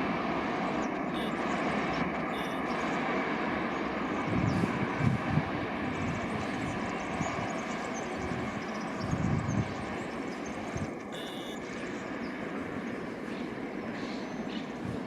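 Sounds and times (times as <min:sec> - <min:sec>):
distant engine drone: 0:00.0 - 0:15.0
station background noise: 0:00.0 - 0:15.0
brief high tone: 0:01.1 - 0:01.4, 0:02.3 - 0:02.6, 0:11.1 - 0:11.7.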